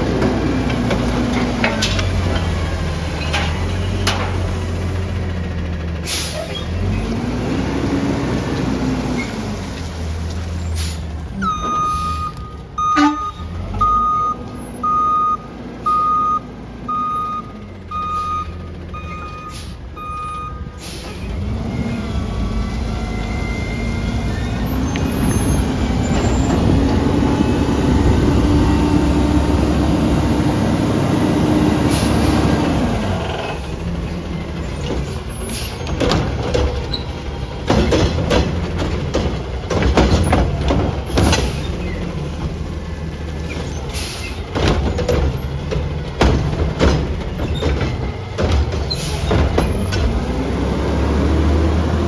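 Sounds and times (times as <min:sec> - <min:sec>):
diesel engine revving: 0:00.0 - 0:52.0
sharp clanks and knocks: 0:00.1 - 0:04.7, 0:33.2 - 0:42.7, 0:43.4 - 0:50.4
reversing alarm beeps: 0:11.4 - 0:20.7.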